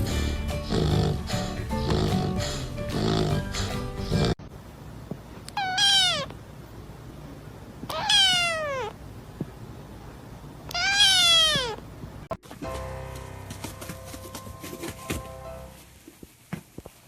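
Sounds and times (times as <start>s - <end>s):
cat meowing: 5.5s - 6.4s, 7.9s - 9.0s, 10.7s - 11.8s.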